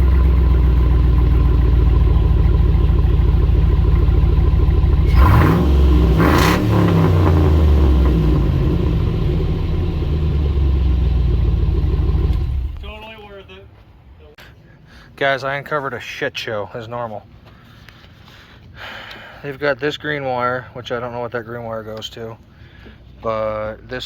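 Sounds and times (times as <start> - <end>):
pickup truck engine idling and revving: 0.0 - 13.0.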